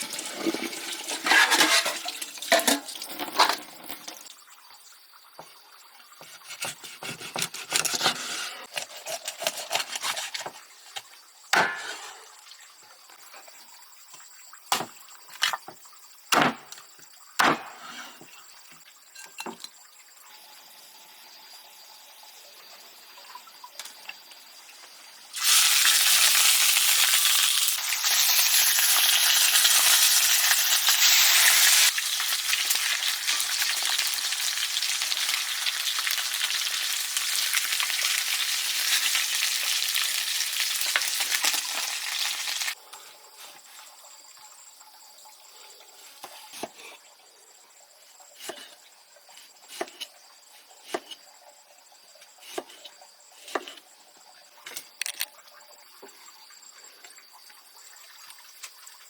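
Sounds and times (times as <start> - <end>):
loud sizzling hiss: 25.3 - 42.8.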